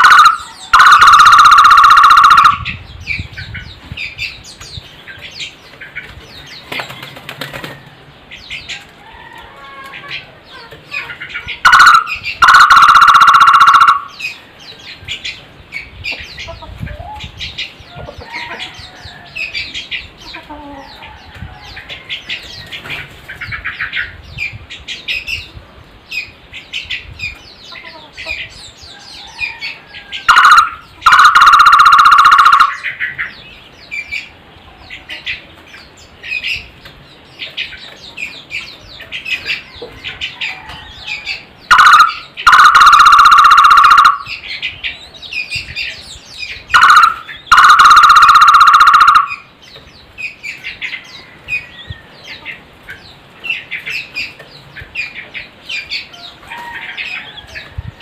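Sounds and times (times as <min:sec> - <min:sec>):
barbet drawn-out calls: 0:00.0 - 0:02.8, 0:11.6 - 0:14.4, 0:30.2 - 0:33.0, 0:41.7 - 0:44.4, 0:46.7 - 0:49.5
small birds chirping: 0:00.0 - 0:58.0.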